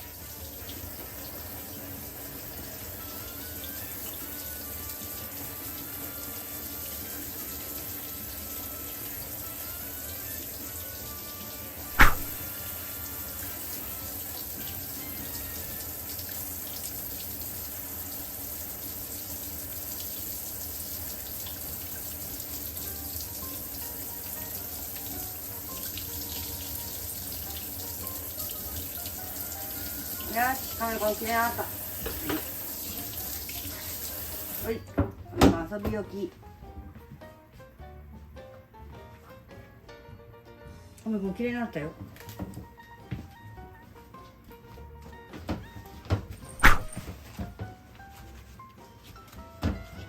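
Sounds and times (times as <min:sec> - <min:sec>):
tap water running into sink: 0:00.0 - 0:36.0, 0:45.4 - 0:47.4
sharp knock: 0:12.0 - 0:12.4, 0:46.6 - 0:47.0.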